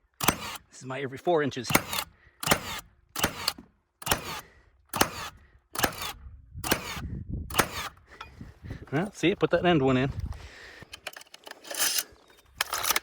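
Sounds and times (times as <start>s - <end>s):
nail gun firing: 0.0s - 0.6s, 1.7s - 8.0s.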